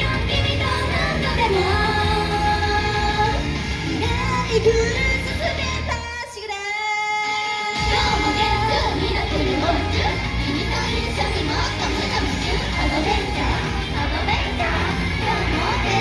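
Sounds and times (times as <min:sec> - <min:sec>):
high female pop vocals: 0:00.0 - 0:16.0
steady bass beat: 0:07.8 - 0:16.0.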